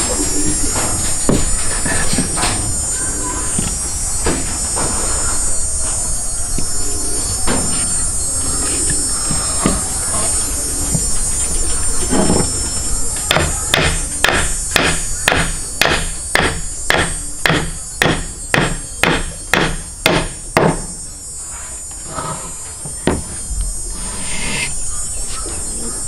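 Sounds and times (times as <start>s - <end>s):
sharp knocks: 13.3s - 20.9s.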